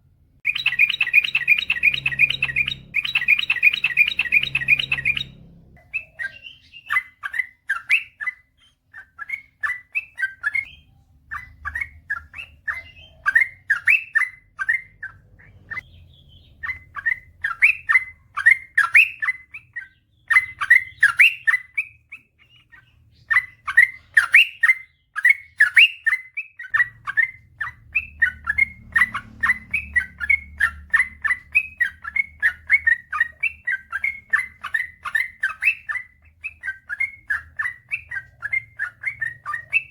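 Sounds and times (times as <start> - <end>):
bulbul singing chattering notes: 0.4 - 7.4.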